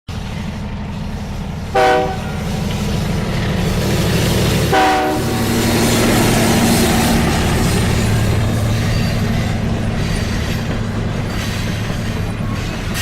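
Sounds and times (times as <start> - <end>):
low rumble of train running: 0.1 - 13.0
locomotive horn blasts: 1.7 - 2.4, 4.7 - 5.5.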